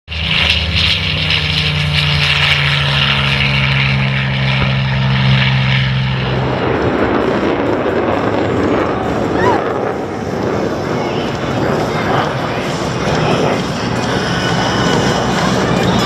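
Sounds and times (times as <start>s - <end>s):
aircraft engine drone: 0.1s - 16.0s
rushing noise: 4.7s - 16.0s.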